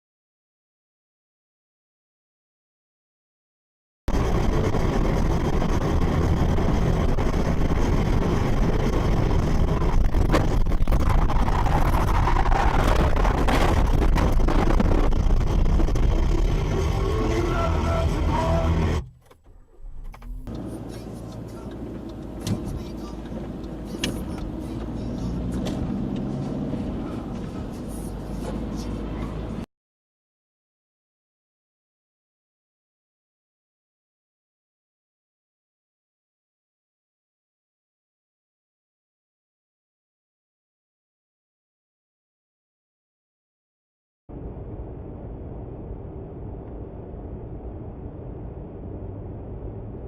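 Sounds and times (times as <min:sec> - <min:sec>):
car engine and tyres rumbling: 0:04.1 - 0:29.7, 0:44.3 - 0:50.0
road noise: 0:04.1 - 0:29.7, 0:44.3 - 0:50.0.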